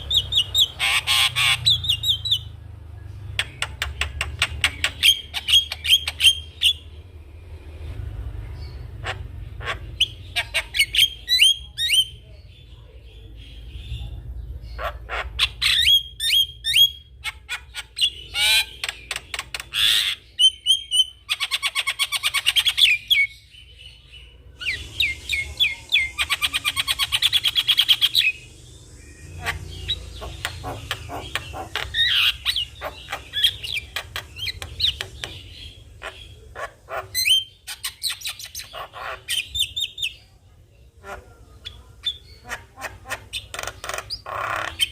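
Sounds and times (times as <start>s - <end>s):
fast rattling bird chatter: 17.2s - 23.1s, 29.2s - 40.0s, 42.0s - 44.9s.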